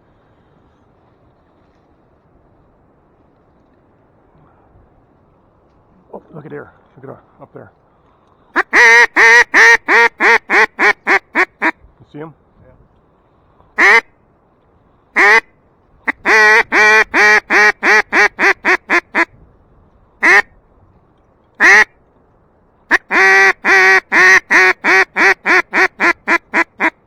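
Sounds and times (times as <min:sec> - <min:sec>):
duck call quacking: 0:08.6 - 0:11.8, 0:13.8 - 0:14.1, 0:15.2 - 0:15.5, 0:16.1 - 0:19.3, 0:20.2 - 0:20.5, 0:21.6 - 0:21.9, 0:22.9 - 0:27.0.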